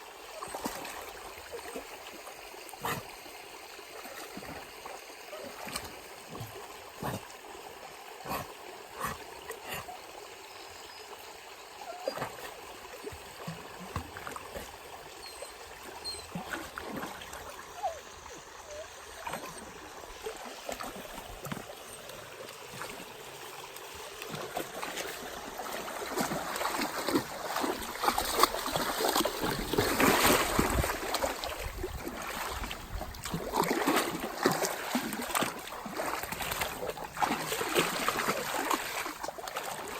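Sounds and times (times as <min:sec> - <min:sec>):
running water: 0:00.0 - 0:39.9
dog splashing in water: 0:16.3 - 0:17.5, 0:23.9 - 0:39.9.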